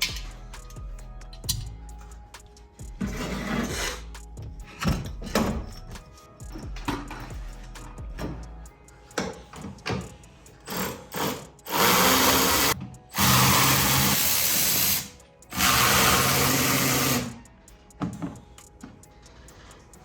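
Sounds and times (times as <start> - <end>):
power drill running: 10.7 - 17.4.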